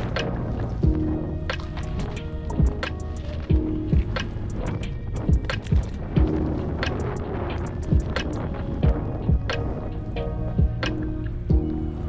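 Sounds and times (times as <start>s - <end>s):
kick drum beat: 0.2s - 1.1s, 2.0s - 4.2s, 5.2s - 6.5s, 7.9s - 8.2s, 8.8s - 9.6s, 10.6s - 10.9s, 11.5s - 11.7s.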